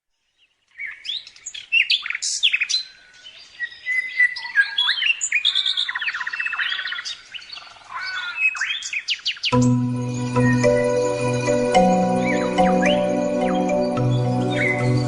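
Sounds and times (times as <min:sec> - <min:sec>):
birdsong chirps and trills: 0:00.2 - 0:15.0.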